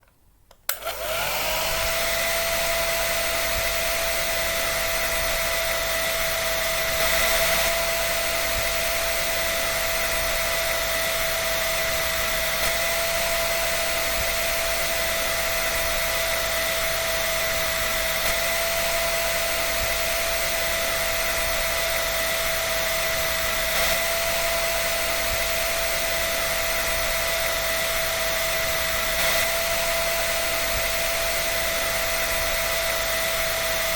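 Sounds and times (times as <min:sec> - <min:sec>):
hair dryer switch click: 0:00.5 - 0:01.8
hair dryer motor whine: 0:00.6 - 0:33.9.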